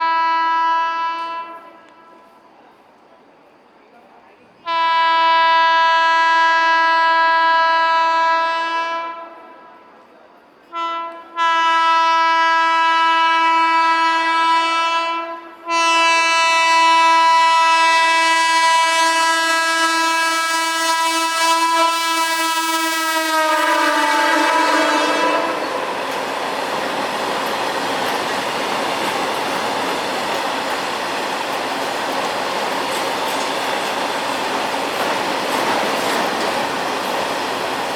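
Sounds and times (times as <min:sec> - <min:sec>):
locomotive air horn blasts: 0:00.0 - 0:02.4, 0:04.7 - 0:09.6, 0:10.7 - 0:26.1
train rushing and clacking by: 0:23.5 - 0:37.9.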